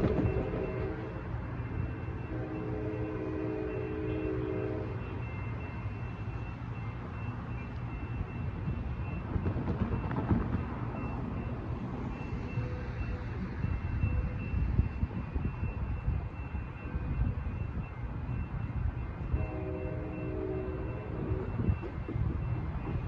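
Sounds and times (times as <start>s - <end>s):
train horn: 0.0s - 1.3s, 2.2s - 5.3s, 19.3s - 21.7s
crossing bell ringing: 0.0s - 23.0s
train rumbling: 0.0s - 23.0s.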